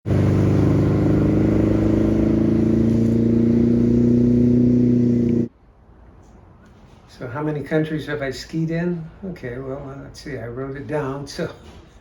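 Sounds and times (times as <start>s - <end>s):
boat engine running at speed: 0.0s - 5.5s.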